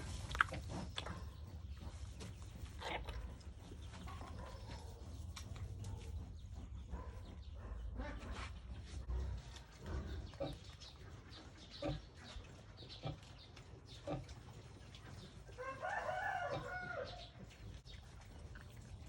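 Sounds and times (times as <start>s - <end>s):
pigs grunting: 0.0s - 15.4s.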